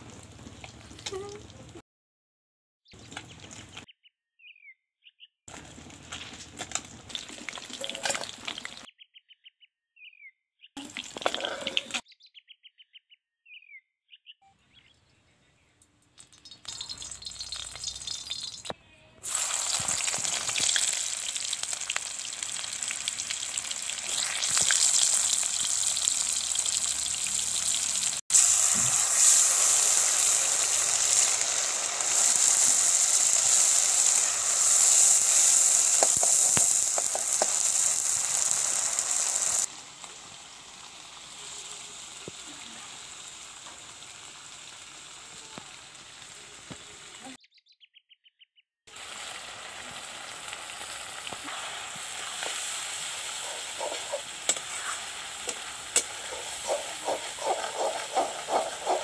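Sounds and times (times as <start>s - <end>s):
onions sizzling in hot oil: 5.6s - 8.9s, 16.4s - 47.2s, 48.9s - 59.0s.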